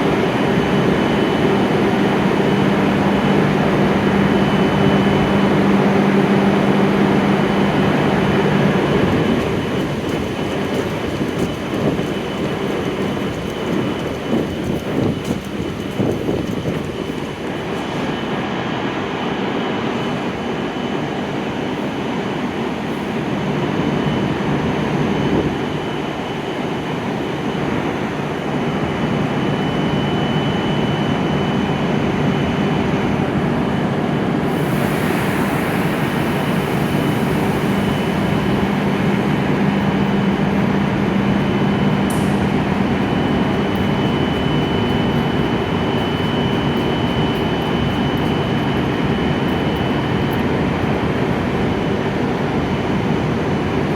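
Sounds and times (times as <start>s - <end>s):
train hum with high whine: 0.0s - 53.9s.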